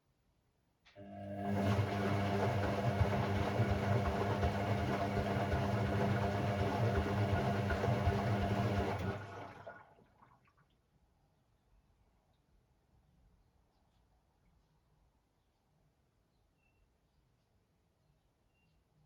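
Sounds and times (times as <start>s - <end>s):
water rushing in washing machine: 1.0s - 10.4s.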